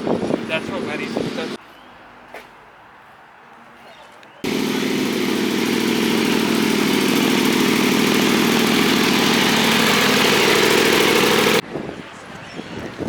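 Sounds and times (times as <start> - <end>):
car engine idling: 4.5 - 11.6.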